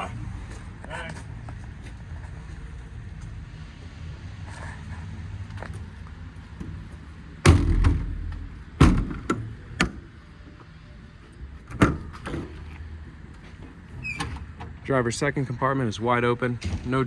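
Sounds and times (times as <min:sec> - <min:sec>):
sharp knock: 0:07.4 - 0:08.2
metal door slamming: 0:07.4 - 0:10.0, 0:11.7 - 0:12.7, 0:14.0 - 0:14.7, 0:16.6 - 0:17.0
latch clunks and clicks: 0:07.4 - 0:10.1, 0:11.6 - 0:12.8, 0:13.4 - 0:14.8.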